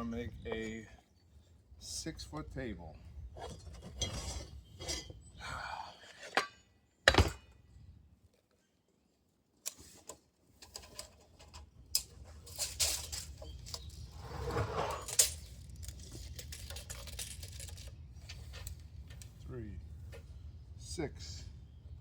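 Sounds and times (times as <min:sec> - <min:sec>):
wood and tools knocking and scraping: 0:03.3 - 0:05.3, 0:09.7 - 0:19.4, 0:20.0 - 0:20.4.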